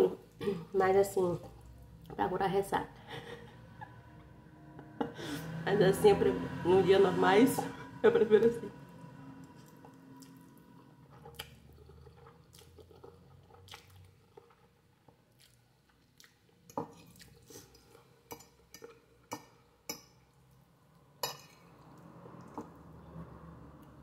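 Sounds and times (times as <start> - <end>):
person chewing noodles: 9.4 - 19.8.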